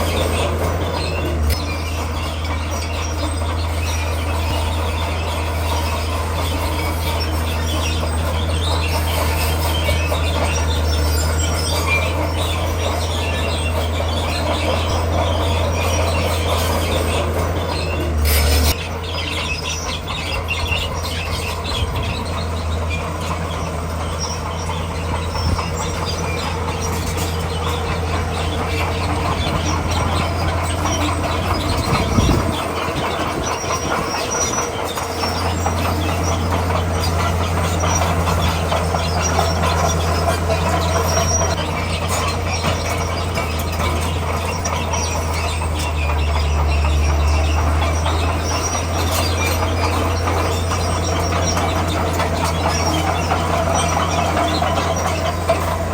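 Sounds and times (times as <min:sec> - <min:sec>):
diesel engine droning: 0:00.0 - 0:55.9
steel tracks clanking and squealing: 0:00.0 - 0:55.9.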